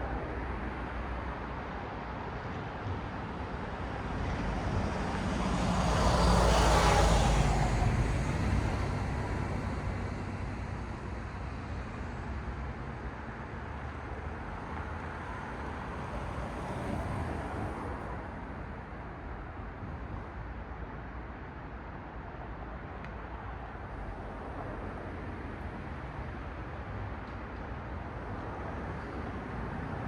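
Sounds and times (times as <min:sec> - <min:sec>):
road traffic hum: 0:00.0 - 0:30.0
car passing by: 0:04.0 - 0:11.0, 0:15.2 - 0:18.4.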